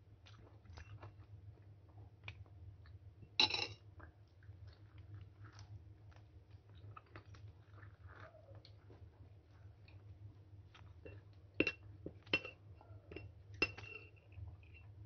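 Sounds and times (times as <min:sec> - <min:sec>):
low steady hum: 0:00.0 - 0:15.0
chewing and lip smacks: 0:00.2 - 0:03.0, 0:03.9 - 0:12.2.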